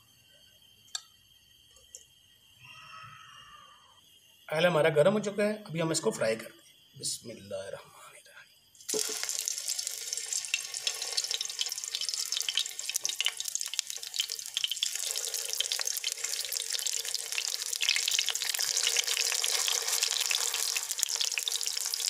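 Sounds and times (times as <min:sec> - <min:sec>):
food sizzling in hot oil: 0:08.8 - 0:22.0.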